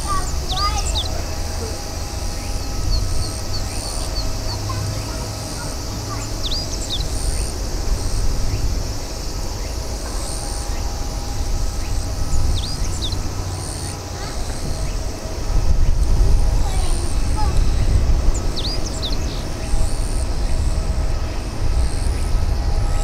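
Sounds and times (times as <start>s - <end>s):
birds chirping: 0.0s - 23.0s
downward-sweeping bird calls: 0.0s - 23.0s
steady low rumble: 0.0s - 23.0s.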